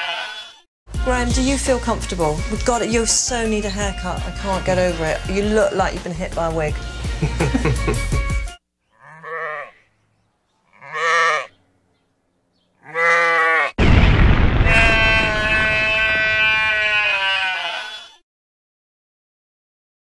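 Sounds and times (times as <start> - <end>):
sheep bleating: 0.0 - 0.6, 8.9 - 9.8, 10.6 - 11.6, 12.8 - 13.8, 14.6 - 18.2.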